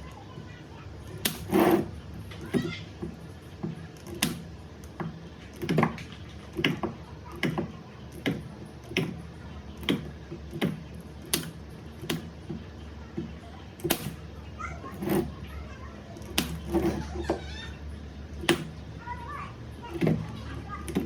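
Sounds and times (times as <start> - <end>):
spot welder snapping: 1.0 - 2.7, 3.9 - 9.2, 9.8 - 12.4, 13.8 - 14.3, 16.2 - 17.0, 18.4 - 18.8.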